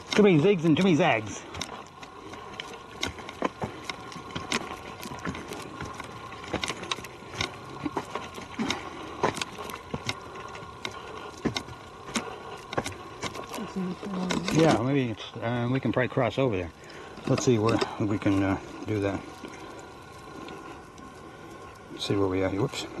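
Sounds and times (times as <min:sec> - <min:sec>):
footsteps crunching on trail: 0:00.0 - 0:14.8
faint steady hum: 0:00.0 - 0:23.0.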